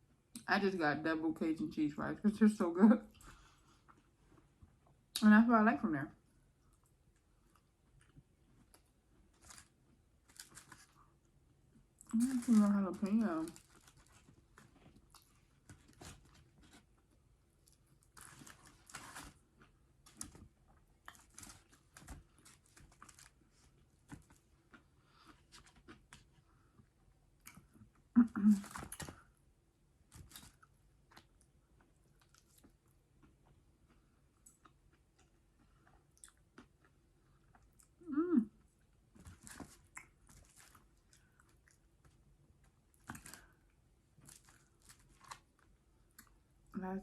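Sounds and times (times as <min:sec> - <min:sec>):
person chewing: 0:30.2 - 0:38.0.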